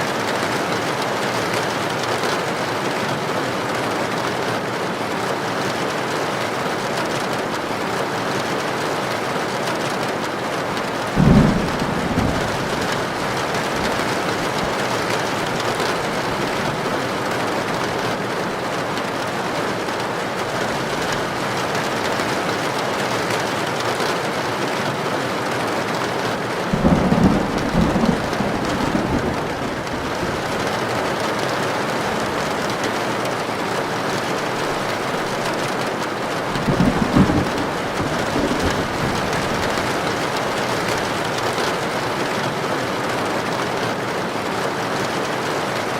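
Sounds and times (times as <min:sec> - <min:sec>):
heavy rain on a tin roof: 0:00.0 - 0:45.9
thunder clap and rumble: 0:11.0 - 0:18.1, 0:26.7 - 0:31.2, 0:34.9 - 0:42.0.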